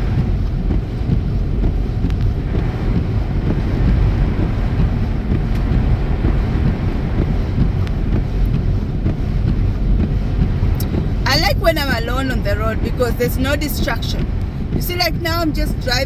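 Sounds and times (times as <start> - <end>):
tyres and engine rumbling in car: 0.0 - 16.0.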